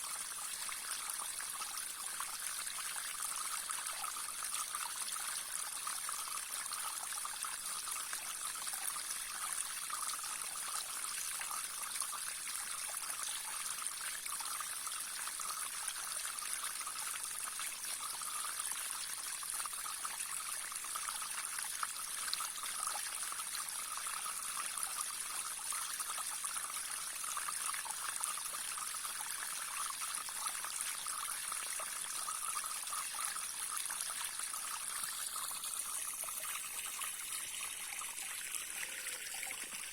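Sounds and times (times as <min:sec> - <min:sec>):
stream babbling over stones: 0:31.6 - 0:39.9.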